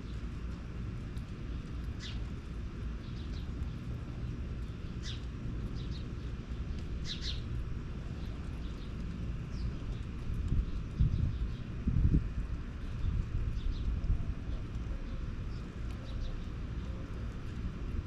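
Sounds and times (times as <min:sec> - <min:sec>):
steady low rumble: 0:00.0 - 0:18.0
small songbird chirping: 0:02.0 - 0:02.3, 0:04.6 - 0:07.5, 0:08.2 - 0:11.7.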